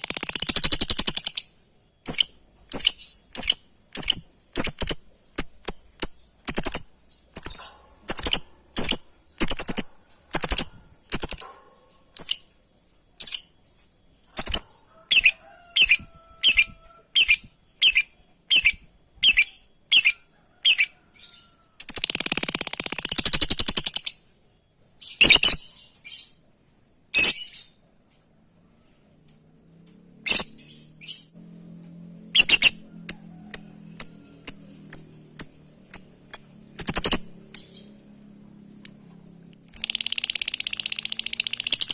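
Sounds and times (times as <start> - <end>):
lovebird rapid chattering: 0.0 - 12.5, 14.2 - 20.9, 21.8 - 24.2, 25.2 - 25.6, 32.4 - 37.9, 39.6 - 41.9.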